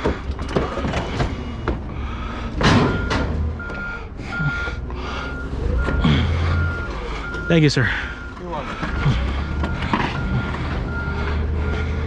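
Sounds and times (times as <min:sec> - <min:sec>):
vehicle engine running: 0:00.0 - 0:12.0
metal knocks and clangs: 0:02.6 - 0:03.4
reversing alarm beeping: 0:02.8 - 0:12.0.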